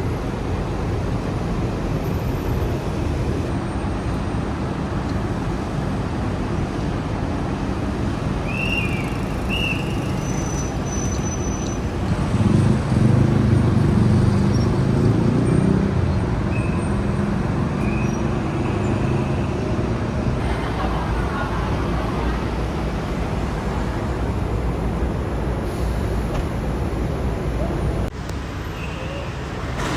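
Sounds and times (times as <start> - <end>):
cars passing: 0.0 - 29.9
vehicle engine rumbling by: 9.2 - 29.9.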